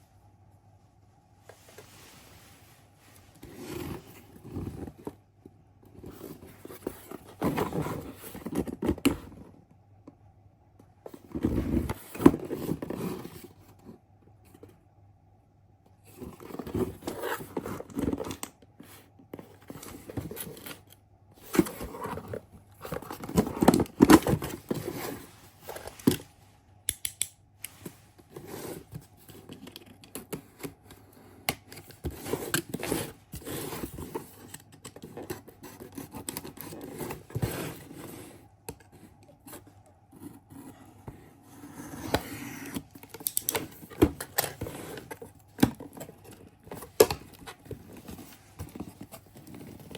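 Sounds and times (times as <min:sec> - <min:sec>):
faint steady hum: 0:00.0 - 0:49.9
scraping and rustling: 0:27.7 - 0:49.9.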